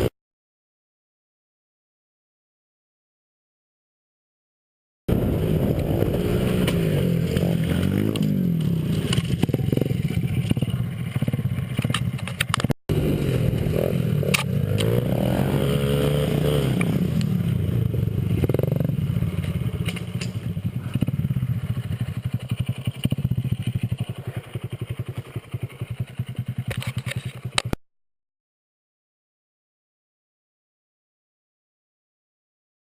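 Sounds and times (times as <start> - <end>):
small motorbike engine revving: 5.1 - 27.8.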